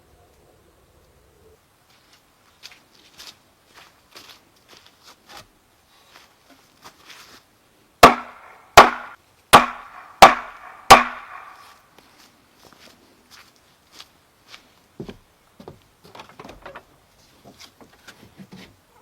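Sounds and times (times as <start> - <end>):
heavy blows on wood: 8.0 - 11.7.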